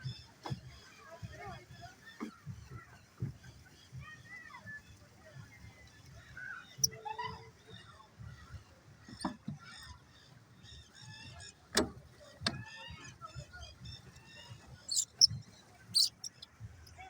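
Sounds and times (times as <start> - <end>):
short high bird calls: 14.9 - 15.3.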